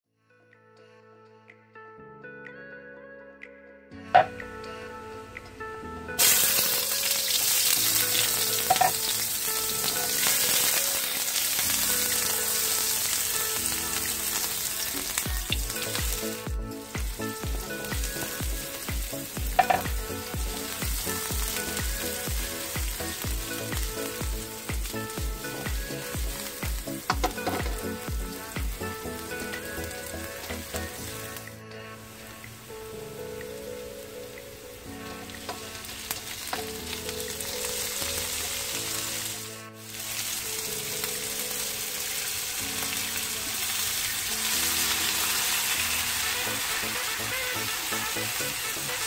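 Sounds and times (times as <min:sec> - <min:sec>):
onion and garlic sizzling in oil: 0:06.2 - 0:31.4, 0:35.0 - 0:49.0.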